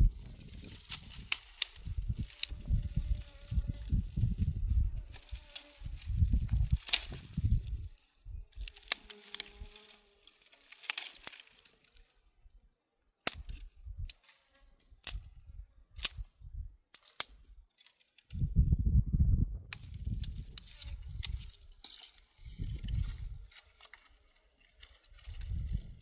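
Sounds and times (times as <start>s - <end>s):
fly buzzing: 1.8s - 7.6s, 8.8s - 10.3s.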